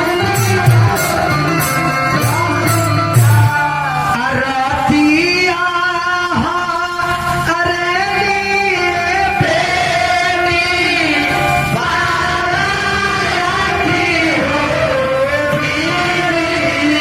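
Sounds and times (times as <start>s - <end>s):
instrumental accompaniment: 0.0s - 4.2s
person singing: 0.0s - 17.0s.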